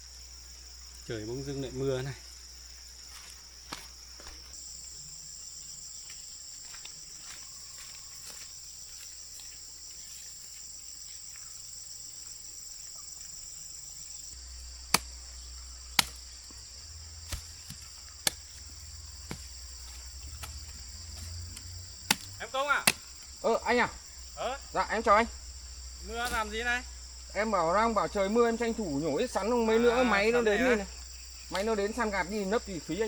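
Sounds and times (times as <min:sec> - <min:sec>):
insects chirping: 0:00.0 - 0:33.0
sharp knocks: 0:16.0 - 0:16.2, 0:22.0 - 0:23.2.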